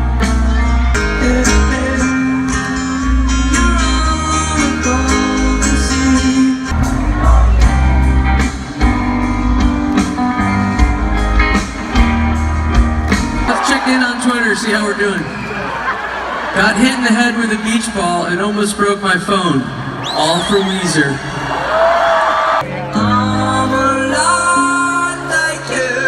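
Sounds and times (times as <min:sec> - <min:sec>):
bass guitar: 0:00.0 - 0:13.6
drums: 0:00.0 - 0:16.9
amplified guitars: 0:00.0 - 0:21.5
person singing: 0:00.1 - 0:08.1, 0:22.6 - 0:26.0.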